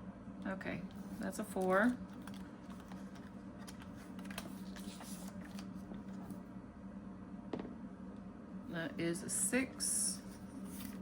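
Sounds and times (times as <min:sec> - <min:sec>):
steady low hum: 0:00.0 - 0:11.0
paper rustling: 0:01.0 - 0:06.4, 0:10.2 - 0:11.0.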